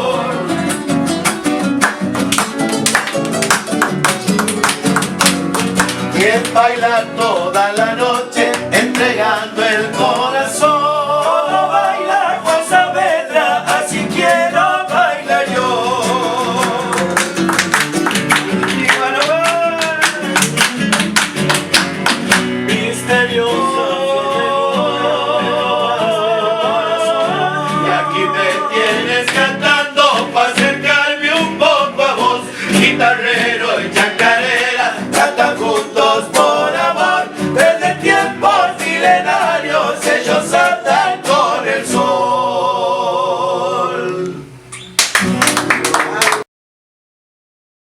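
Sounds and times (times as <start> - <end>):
folk group singing in harmony: 0.0 - 0.8, 6.1 - 17.4, 22.6 - 44.6
strummed guitar: 0.0 - 42.4.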